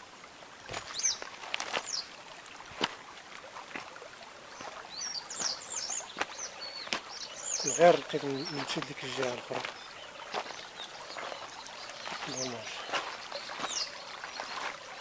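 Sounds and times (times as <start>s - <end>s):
small bird chirping: 4.6s - 14.7s.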